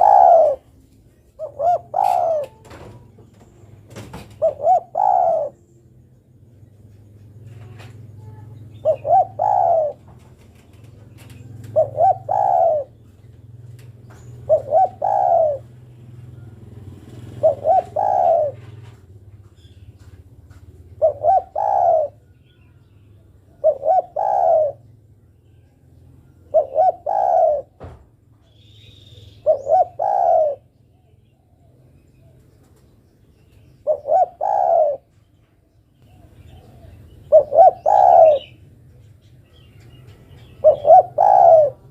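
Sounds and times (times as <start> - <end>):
dove cooing: 0.0 - 3.1, 4.0 - 5.7, 7.5 - 19.0, 20.8 - 22.4, 23.5 - 25.0, 26.2 - 27.9, 29.0 - 31.0, 33.8 - 35.2, 36.0 - 38.6, 39.5 - 41.9.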